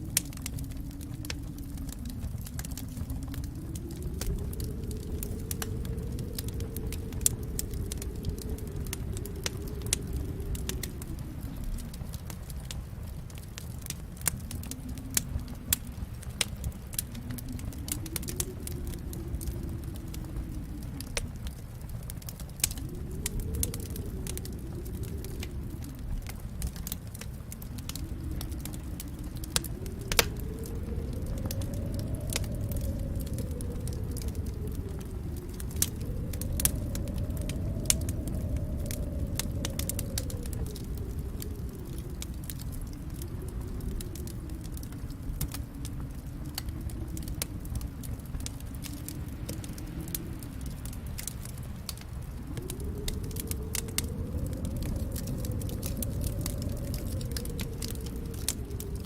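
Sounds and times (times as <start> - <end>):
low rumble of flames: 0.0 - 59.0
wood fire pops and snaps: 0.0 - 59.0.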